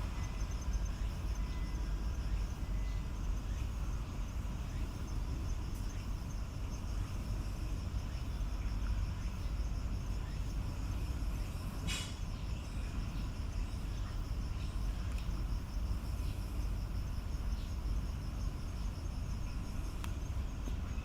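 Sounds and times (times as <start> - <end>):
insects chirping: 0.0 - 21.0
brief hiss: 11.8 - 12.3.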